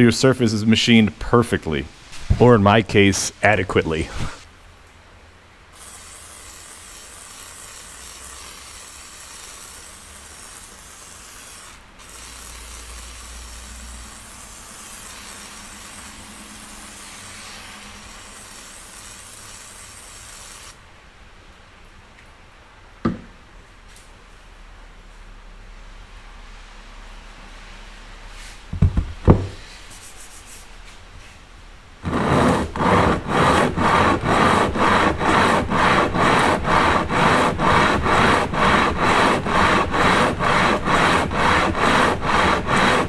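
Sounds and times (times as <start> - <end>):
metal rubbed on wet sandpaper: 1.5 - 4.4, 5.8 - 20.8, 32.0 - 43.0.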